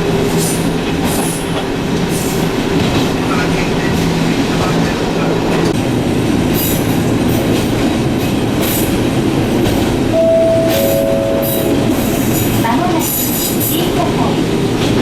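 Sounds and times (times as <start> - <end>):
train wheels rumbling on rail: 0.0 - 15.0
two-note tone: 10.2 - 12.4.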